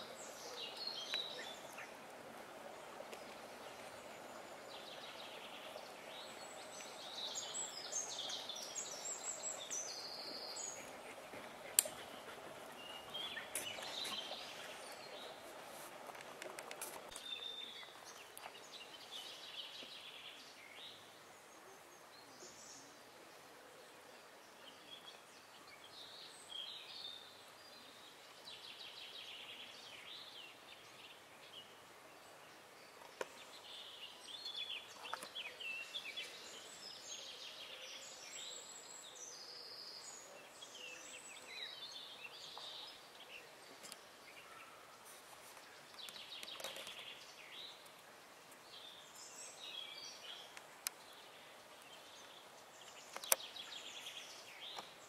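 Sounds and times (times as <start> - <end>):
faint steady hiss: 0.0 - 55.0
songbirds singing: 0.0 - 55.0.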